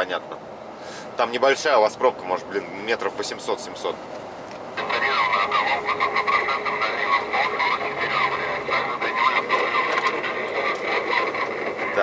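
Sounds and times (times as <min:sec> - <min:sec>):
voices over cb radio: 0:04.8 - 0:12.0.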